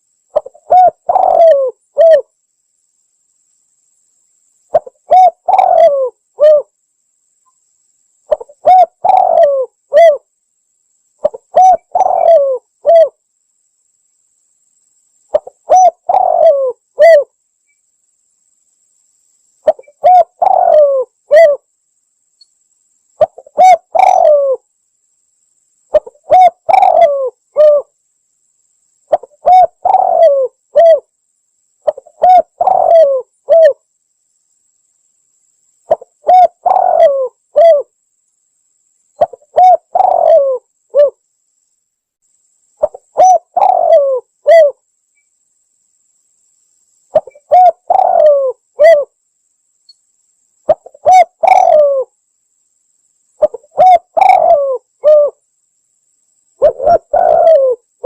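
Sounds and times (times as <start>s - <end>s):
dove cooing: 0.3s - 2.3s, 4.7s - 6.7s, 8.3s - 10.3s, 11.2s - 13.2s, 15.3s - 17.3s, 19.6s - 21.6s, 23.2s - 24.6s, 25.9s - 27.9s, 29.1s - 31.1s, 31.8s - 33.8s, 35.9s - 37.9s, 39.2s - 41.2s, 42.8s - 44.8s, 47.2s - 49.2s, 50.7s - 52.1s, 53.4s - 55.4s, 56.6s - 58.0s.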